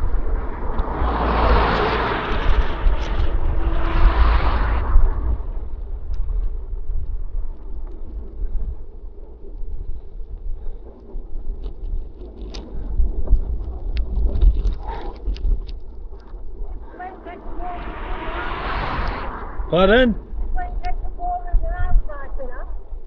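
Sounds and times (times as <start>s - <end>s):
vehicle passing: 0.0s - 5.8s, 16.8s - 20.6s
wind on microphone: 0.0s - 23.0s
faint clicks and ticks: 5.6s - 17.1s, 20.5s - 21.8s.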